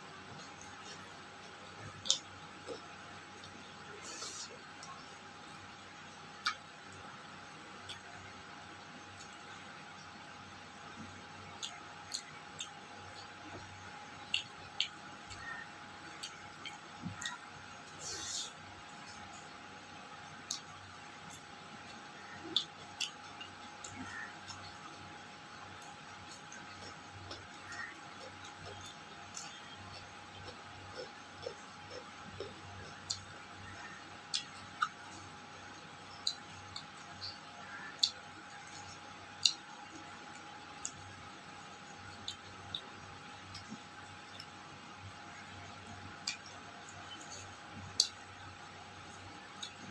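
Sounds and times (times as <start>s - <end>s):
faint steady hum: 0.0s - 49.9s
eating clicks and smacks: 0.3s - 10.2s, 10.9s - 49.9s
mouth smacks while chewing: 6.4s - 6.7s, 11.0s - 15.6s, 20.4s - 24.8s, 34.3s - 35.3s, 46.2s - 48.2s
background hiss: 17.8s - 18.6s.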